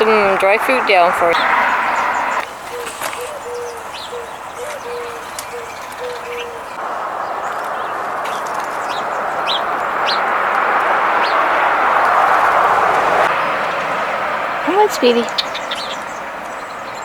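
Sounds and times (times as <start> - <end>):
rushing noise: 0.0 - 3.1, 6.7 - 14.8
bird chirping: 0.0 - 10.3, 14.7 - 17.0.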